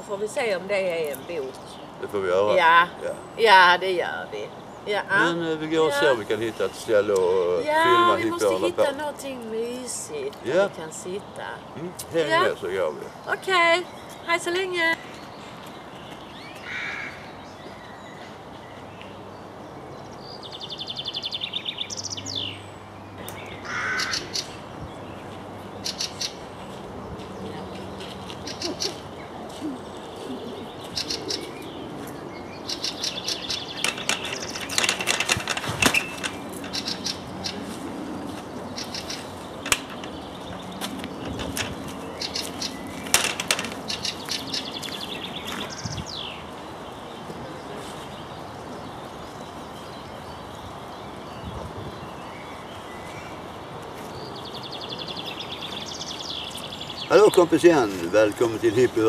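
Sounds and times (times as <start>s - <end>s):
birds chirping and trilling: 0.0s - 59.0s.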